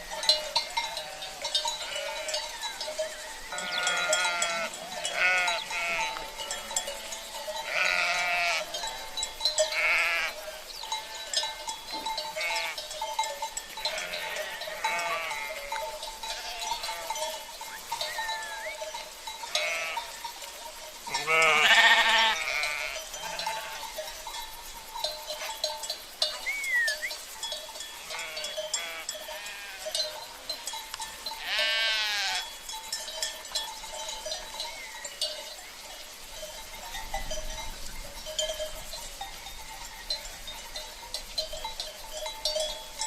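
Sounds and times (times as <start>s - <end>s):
livestock bells clanking: 0.0s - 43.0s
sheep bleating: 0.9s - 2.5s, 3.5s - 8.8s, 9.7s - 11.4s, 12.3s - 12.8s, 13.8s - 17.5s, 19.5s - 20.1s, 21.1s - 23.9s, 28.0s - 30.0s, 31.4s - 32.5s.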